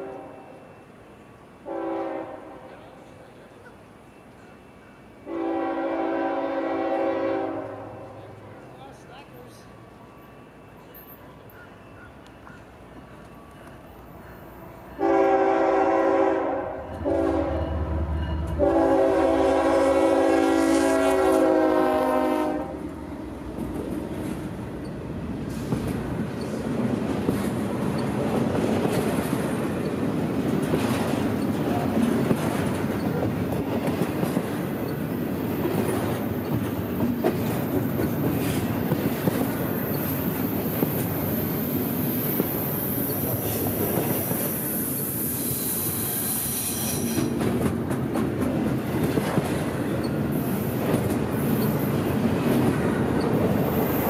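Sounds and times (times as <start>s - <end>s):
locomotive air horn blasts: 0.0s - 0.6s, 1.6s - 2.7s, 5.2s - 8.2s, 15.0s - 17.8s, 18.5s - 22.8s
train rolling past: 0.0s - 54.0s
wheels clicking over rail joints: 23.5s - 41.3s, 47.0s - 54.0s.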